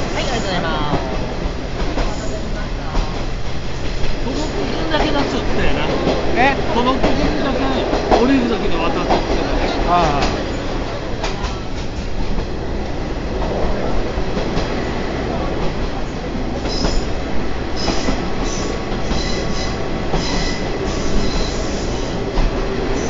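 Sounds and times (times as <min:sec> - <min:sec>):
wheels rumbling on rails: 0:00.0 - 0:23.0
high-pitched wheel squeals: 0:17.8 - 0:22.2.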